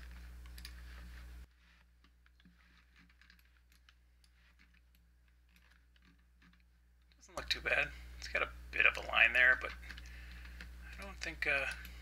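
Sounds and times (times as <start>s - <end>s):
computer keyboard and mouse clicking: 0.0s - 0.8s
low steady hum: 0.0s - 12.0s.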